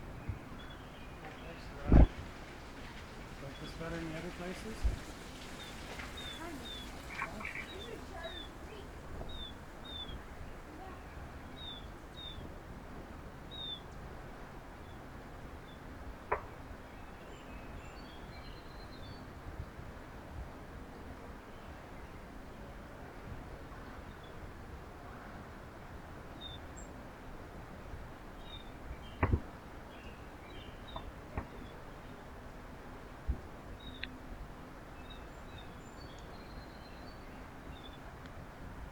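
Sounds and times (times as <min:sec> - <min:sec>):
songbird chirping: 0:00.0 - 0:12.5, 0:14.8 - 0:19.4, 0:27.8 - 0:32.8, 0:33.6 - 0:38.4
outdoor background noise: 0:00.0 - 0:38.9
faint bird chirps: 0:05.4 - 0:12.5
sharp knocks: 0:29.2 - 0:29.5.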